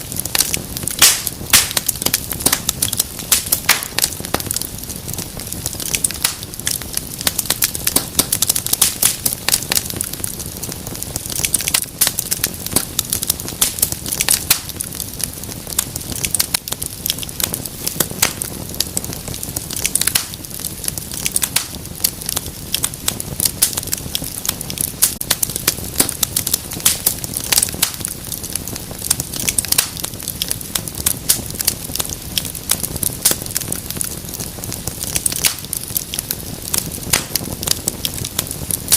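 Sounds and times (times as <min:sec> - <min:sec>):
low rumble of flames: 0:00.0 - 0:38.9
wood fire pops and snaps: 0:00.0 - 0:38.9.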